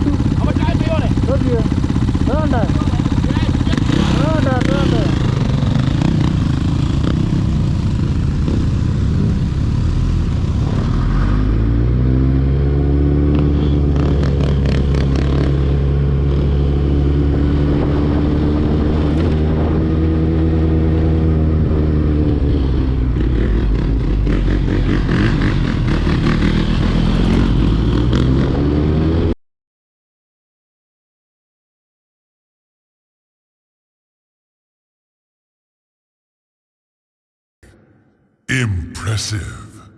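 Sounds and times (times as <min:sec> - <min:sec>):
motorcycle engine accelerating: 0:00.0 - 0:29.4.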